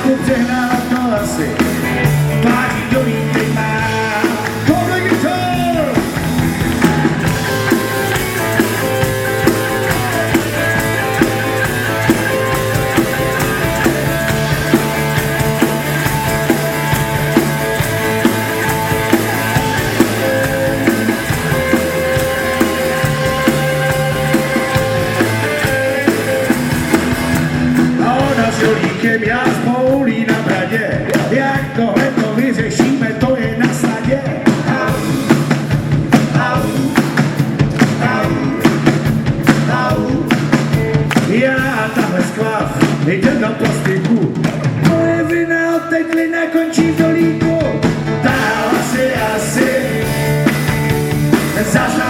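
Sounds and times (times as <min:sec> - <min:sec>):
guitar holding lead notes: 0:00.0 - 0:29.4, 0:46.8 - 0:52.0
drums keeping a beat: 0:00.0 - 0:52.0
rock and roll band playing: 0:00.0 - 0:52.0.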